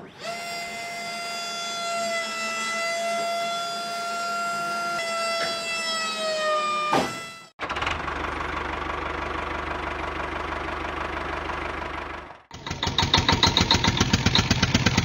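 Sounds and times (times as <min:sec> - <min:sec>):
toy trailer motor whine: 0:00.0 - 0:07.5, 0:12.5 - 0:15.0
toy tractor running: 0:12.5 - 0:15.0.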